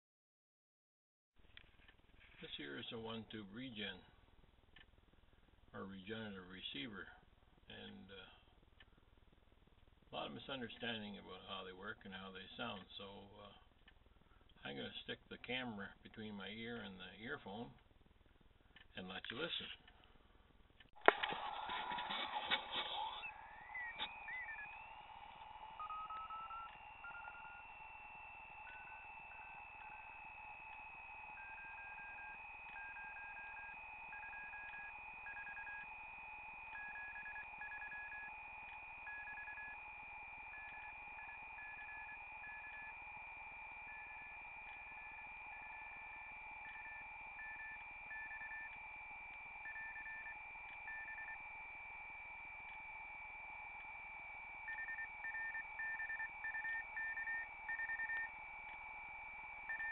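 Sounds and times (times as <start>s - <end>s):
radio receiver hiss: 21.0s - 31.9s
steady high whistle: 21.1s - 59.9s
morse code tone: 22.0s - 59.9s.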